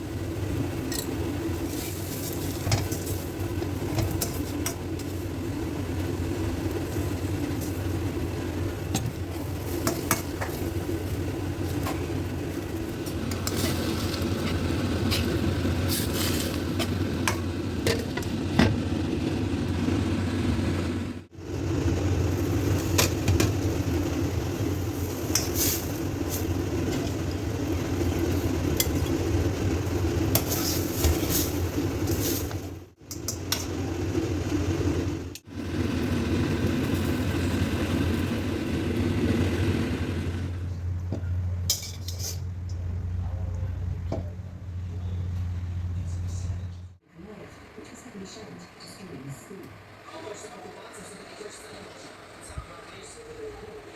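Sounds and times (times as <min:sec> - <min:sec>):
steady low hum: 0:00.0 - 0:53.9
spatula scraping a pan: 0:13.1 - 0:17.0.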